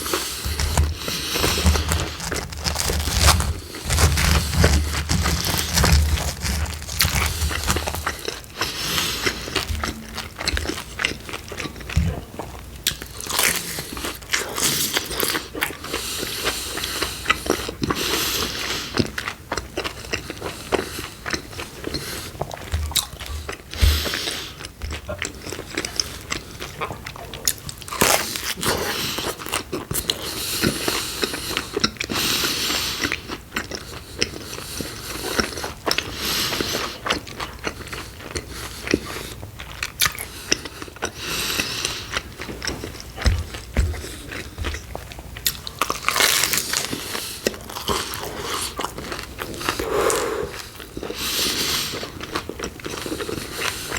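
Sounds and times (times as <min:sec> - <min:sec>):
crust crunching: 0:00.0 - 0:12.2
biting and chewing pizza: 0:00.0 - 0:53.9.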